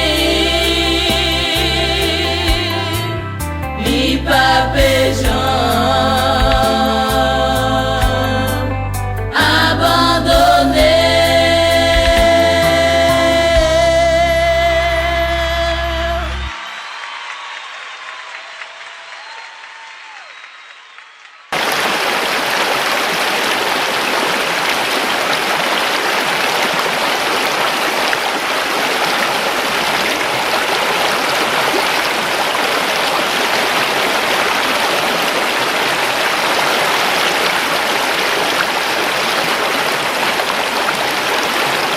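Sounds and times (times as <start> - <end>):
rushing water: 21.5 - 41.9.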